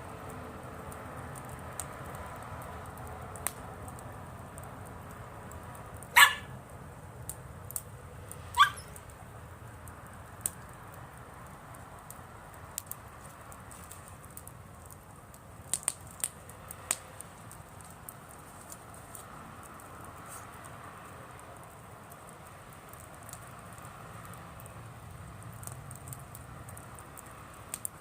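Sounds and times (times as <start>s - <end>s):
campfire crackling and popping: 0.0s - 28.0s
dog barking: 6.2s - 6.5s, 8.6s - 8.9s.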